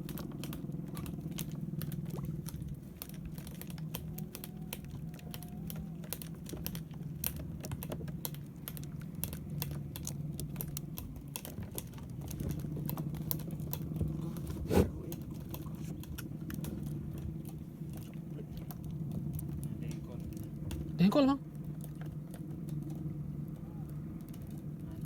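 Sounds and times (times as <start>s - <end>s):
sharp clicks and ticks: 0.0s - 14.2s
boat engine running: 0.0s - 25.0s.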